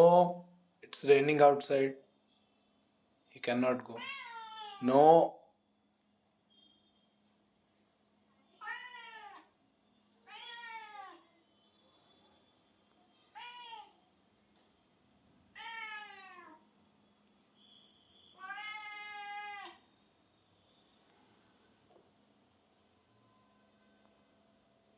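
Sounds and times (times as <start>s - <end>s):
cat meowing: 4.0s - 4.8s, 8.6s - 9.5s, 10.2s - 11.3s, 13.3s - 14.0s, 15.5s - 16.6s, 18.3s - 19.8s.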